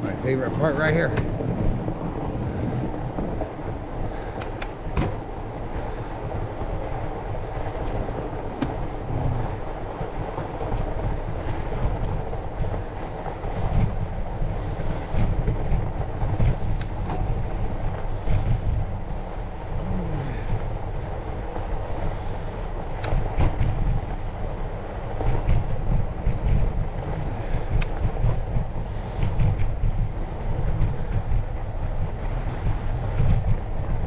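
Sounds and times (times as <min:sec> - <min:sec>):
bike tyres rumbling on snow: 0:00.0 - 0:34.0
bike clicks and rattles: 0:04.1 - 0:05.2, 0:21.8 - 0:24.4.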